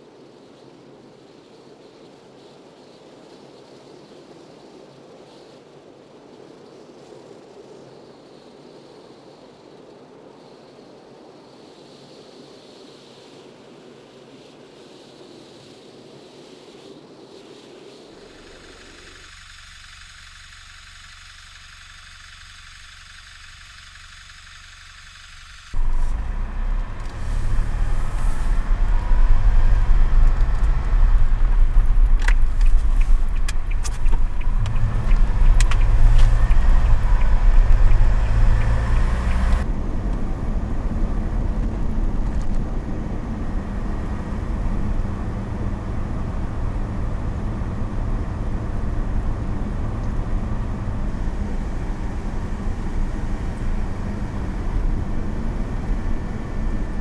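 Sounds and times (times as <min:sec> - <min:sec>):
car engine and tyres rumbling: 0:18.2 - 0:57.0
sharp clicks: 0:18.4 - 0:39.6.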